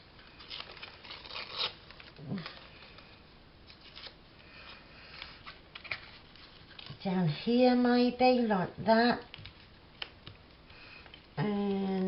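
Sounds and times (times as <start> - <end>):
paper and card rustling: 0.2 - 7.8.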